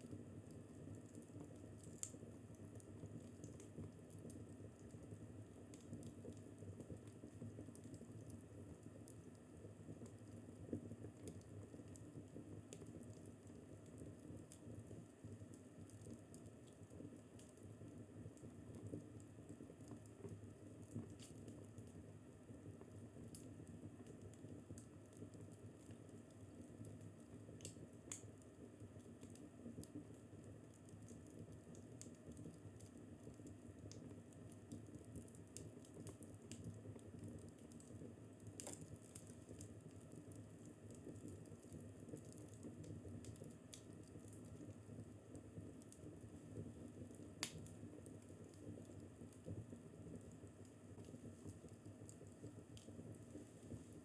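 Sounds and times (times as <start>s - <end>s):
fireplace crackling: 0.1s - 9.2s, 22.8s - 54.0s.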